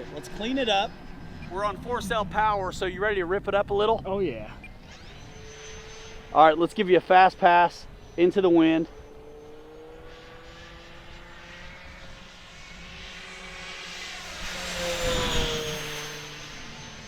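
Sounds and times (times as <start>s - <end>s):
model plane motor whine: 4.6s - 17.0s.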